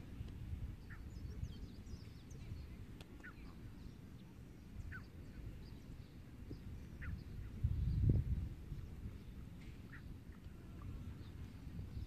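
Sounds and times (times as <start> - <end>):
faint high bird chirps: 0.7 - 8.2.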